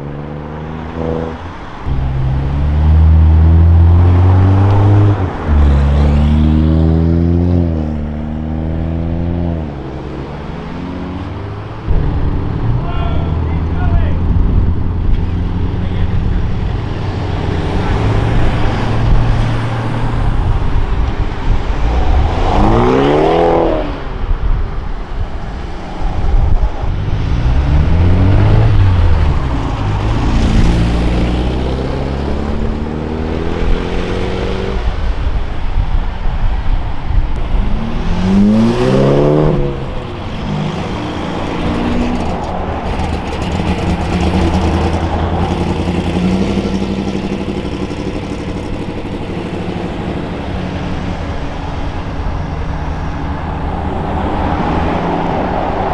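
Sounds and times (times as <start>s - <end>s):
modified car engines revving: 0.0s - 55.9s.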